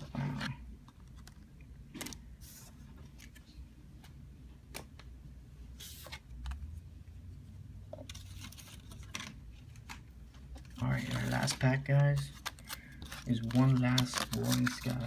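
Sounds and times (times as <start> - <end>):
cards rustling and clicking: 0.0 - 5.1, 8.0 - 15.0.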